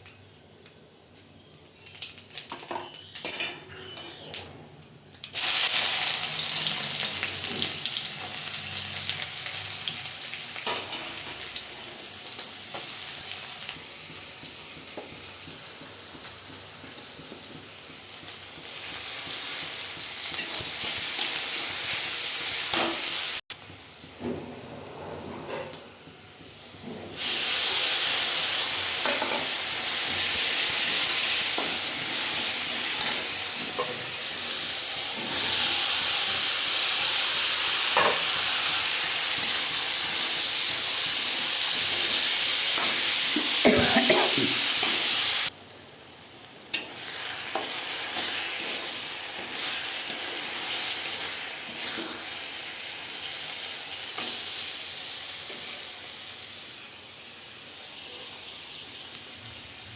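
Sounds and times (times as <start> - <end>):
food sizzling in hot oil: 5.3 - 24.2, 26.4 - 45.6, 46.3 - 59.9
spoon tapping and scraping pan: 42.8 - 45.1.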